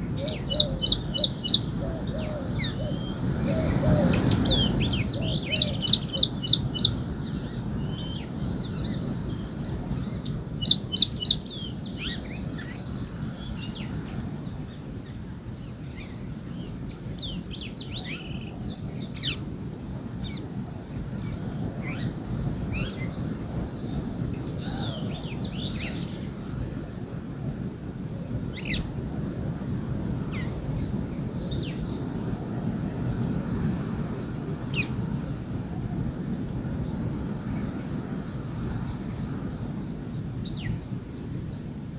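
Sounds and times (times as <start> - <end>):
birds chirping and calling: 0.0 - 20.5, 21.2 - 26.8.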